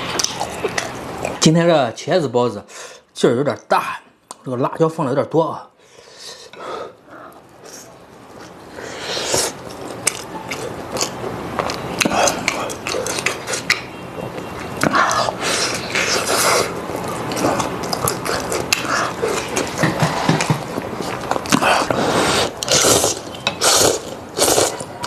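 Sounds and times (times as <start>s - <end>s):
person biting and chewing: 7.6s - 13.9s, 14.8s - 24.9s
wet mouth clicks: 17.3s - 19.7s.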